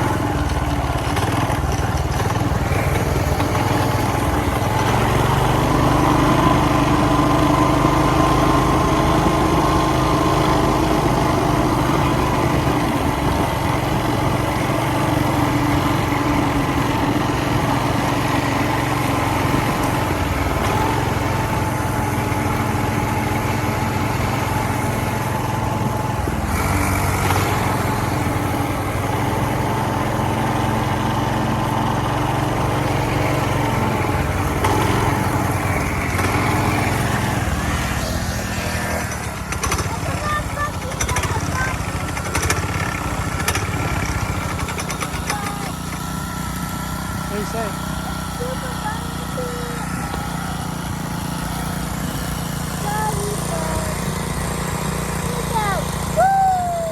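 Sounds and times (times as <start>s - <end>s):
small gas engine running: 0.0s - 56.9s.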